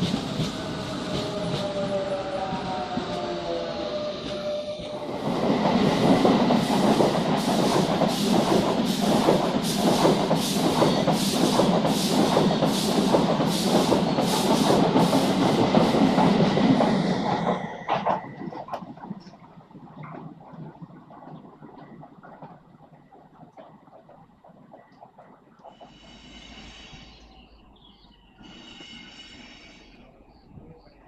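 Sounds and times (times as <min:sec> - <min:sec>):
train passing at speed: 0:00.0 - 0:31.0
wheels clacking over rail joints: 0:04.4 - 0:26.1.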